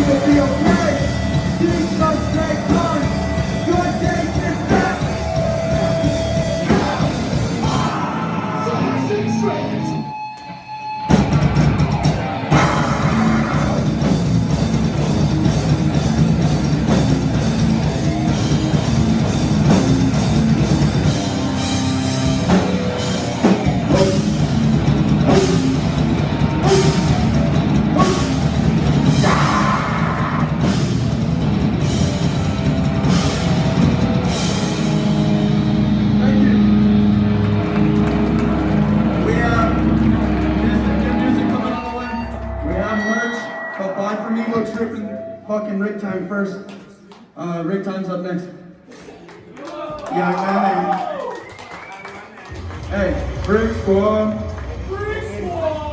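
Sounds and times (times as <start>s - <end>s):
hardcore band playing: 0.0s - 46.0s, 52.4s - 55.9s.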